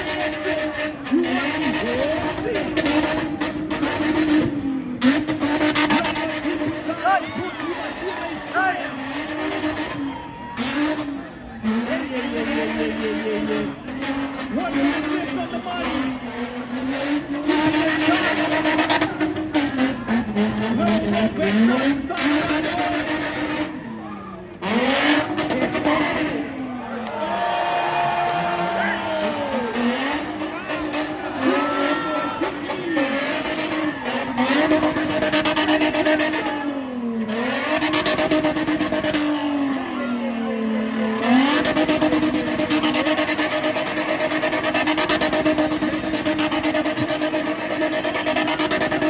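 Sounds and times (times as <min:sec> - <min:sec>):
car engine revving high: 0:00.0 - 0:49.0
tyres screeching on pavement: 0:27.9 - 0:40.2.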